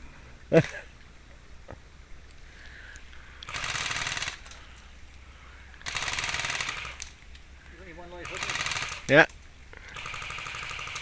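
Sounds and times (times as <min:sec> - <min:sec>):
airsoft gun firing full auto: 0:03.5 - 0:04.5, 0:05.8 - 0:07.0, 0:08.2 - 0:09.1, 0:10.0 - 0:11.0.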